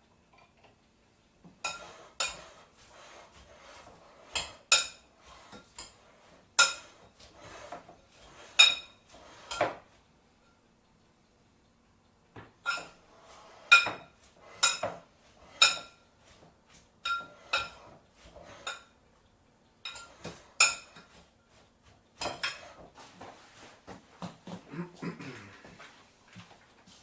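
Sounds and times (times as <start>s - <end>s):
dishes and cutlery clinking: 1.6s - 9.8s, 12.6s - 13.0s, 13.6s - 16.0s, 17.0s - 19.0s, 19.8s - 21.6s, 22.2s - 23.5s.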